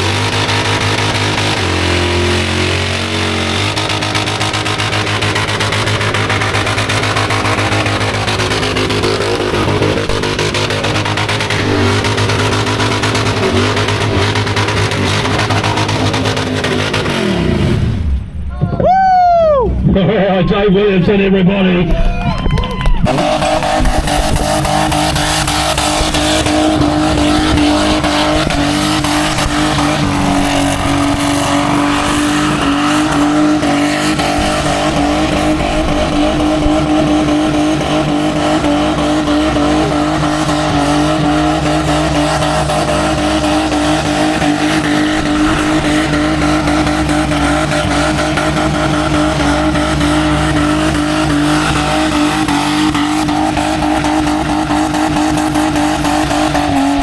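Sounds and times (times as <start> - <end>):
car engine at high revs: 0.0 - 18.5, 22.8 - 57.0
tyres screeching: 23.0 - 49.9.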